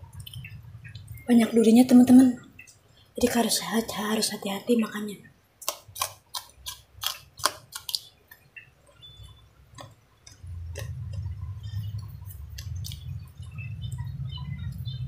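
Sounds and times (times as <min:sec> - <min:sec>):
wet mouth smacks and chewing: 0:05.6 - 0:08.5, 0:09.8 - 0:13.2
low steady hum: 0:08.0 - 0:15.0.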